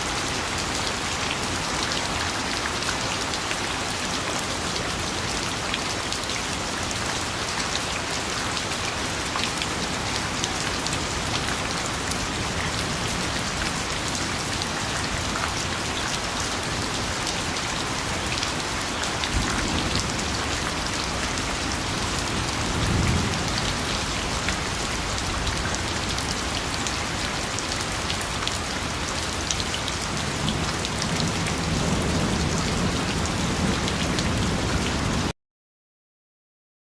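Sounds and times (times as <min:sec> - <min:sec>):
rain falling steadily: 0:00.0 - 0:35.4.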